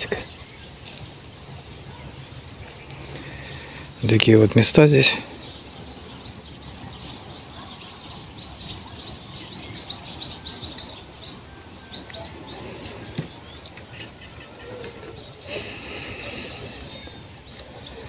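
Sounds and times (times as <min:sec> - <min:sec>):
low steady background noise: 0:00.0 - 0:18.0
small birds chirping: 0:00.0 - 0:18.0.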